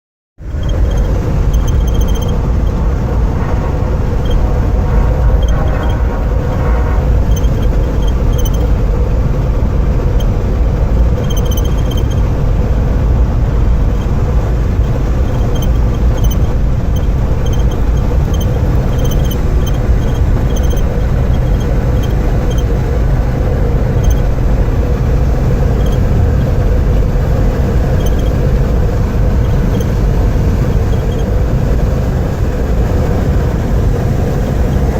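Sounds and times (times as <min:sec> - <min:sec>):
faint steady hum: 0:00.4 - 0:34.9
vehicle rumble: 0:00.4 - 0:34.9
light ticks: 0:14.8 - 0:22.7.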